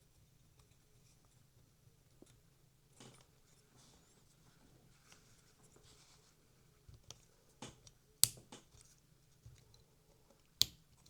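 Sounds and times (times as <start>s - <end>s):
small plastic clicks: 7.8s - 8.8s
sharp plastic snap: 8.2s - 8.7s, 10.6s - 10.8s.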